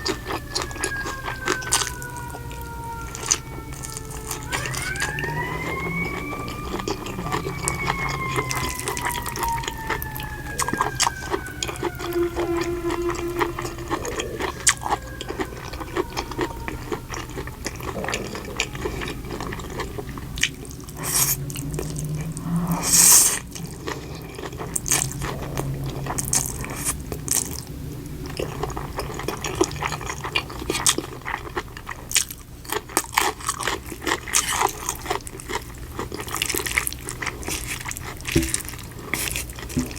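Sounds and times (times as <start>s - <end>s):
slowly falling whine: 0.0s - 30.7s
chewing with mouth clicks: 0.0s - 39.9s.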